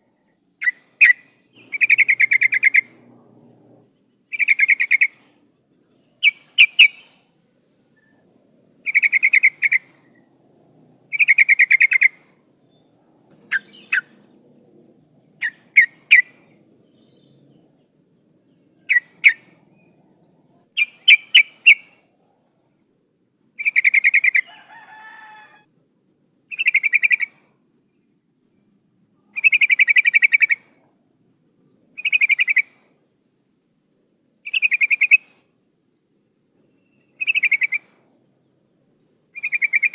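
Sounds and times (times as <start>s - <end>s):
bird chattering call: 0.6s - 3.2s, 4.3s - 5.2s, 6.2s - 7.2s, 8.7s - 12.3s, 13.4s - 14.6s, 37.2s - 38.0s, 39.4s - 39.9s.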